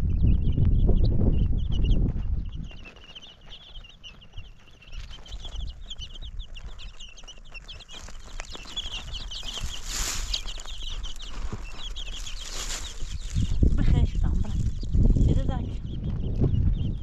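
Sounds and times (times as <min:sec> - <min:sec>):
small birds chirping: 0:00.0 - 0:17.0
low rumble: 0:13.2 - 0:17.0.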